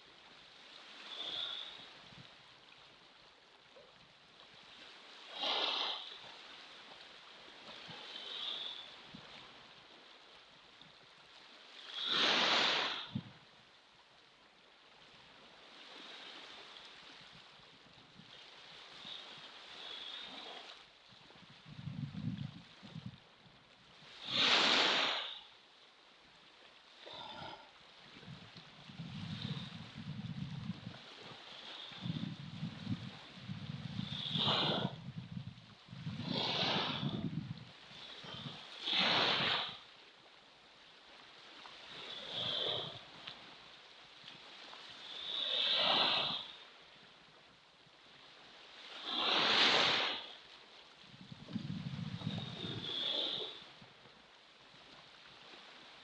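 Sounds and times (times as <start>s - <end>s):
wind buffeting microphone: 21.6s - 23.2s, 28.2s - 31.0s, 32.0s - 37.7s, 51.2s - 52.9s
ocean waves breaking: 24.0s - 25.4s, 36.1s - 39.8s
ocean waves washing: 24.1s - 25.4s, 29.0s - 39.8s.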